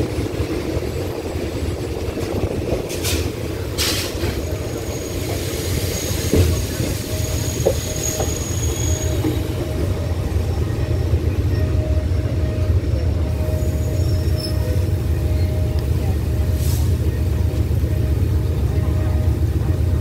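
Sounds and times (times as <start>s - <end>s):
train rumbling and clattering: 0.0s - 20.0s
high wheel squeal: 3.8s - 15.8s.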